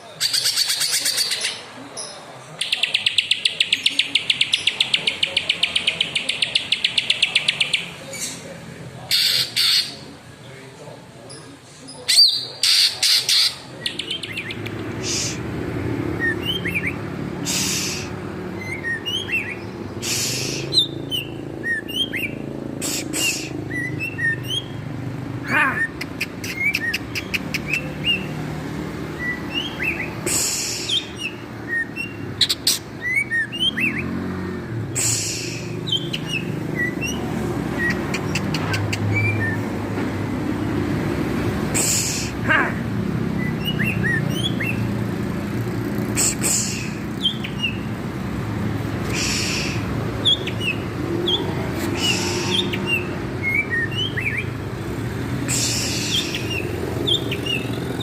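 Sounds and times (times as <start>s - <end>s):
harsh rasping bird calls: 0.0s - 10.4s, 11.2s - 58.0s
bird whistling song: 16.1s - 24.8s, 29.1s - 34.2s, 35.0s - 39.7s, 43.4s - 44.9s, 46.2s - 47.9s, 49.0s - 51.4s, 52.0s - 54.6s, 55.5s - 58.0s.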